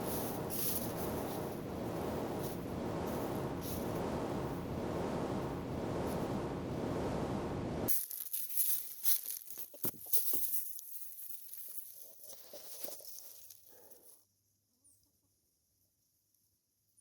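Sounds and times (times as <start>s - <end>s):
low rumbling noise: 0.0s - 7.9s
soft rustling and crinkling: 7.9s - 15.2s.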